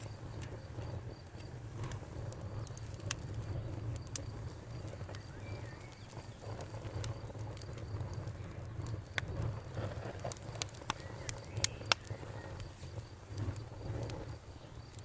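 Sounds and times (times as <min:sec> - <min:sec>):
campfire crackling and popping: 0:00.0 - 0:15.0
faint cricket trill: 0:00.0 - 0:15.0
bird chirp: 0:05.0 - 0:06.6.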